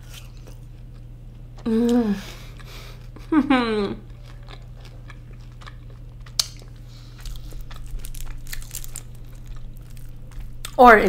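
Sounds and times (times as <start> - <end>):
chewing with wet mouth clicks: 4.0 - 10.8.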